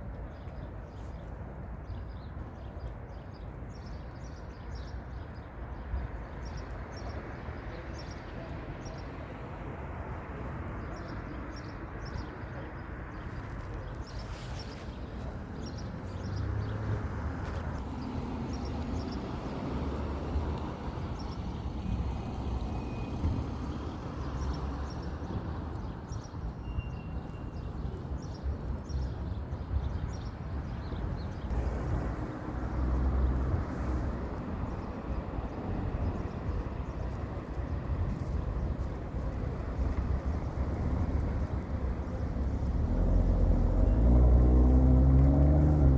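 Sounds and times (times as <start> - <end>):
faint high bird chirps: 26.6 - 28.0.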